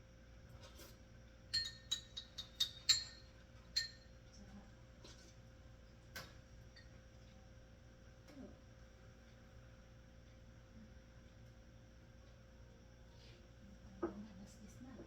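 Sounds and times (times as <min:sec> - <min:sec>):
kitchenware clinking: 0:01.5 - 0:04.1.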